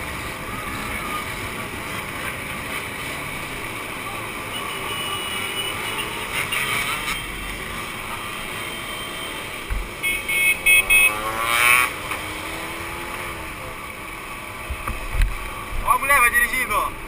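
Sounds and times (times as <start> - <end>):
motorcycle engines revving: 0.0 - 17.0
short high beeps: 10.0 - 11.2.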